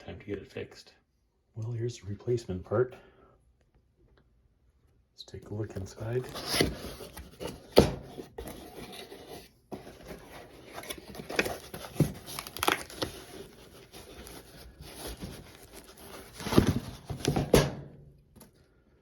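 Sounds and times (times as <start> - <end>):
packaging crinkling and tearing: 6.0 - 7.7, 9.8 - 17.4.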